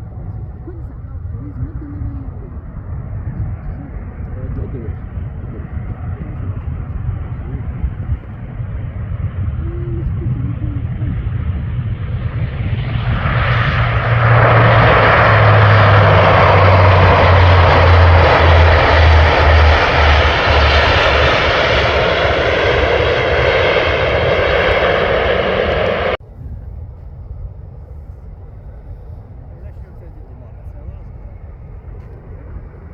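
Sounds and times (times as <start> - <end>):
airliner passing overhead: 0.0 - 32.9
low hum sliding down in pitch: 9.1 - 26.2.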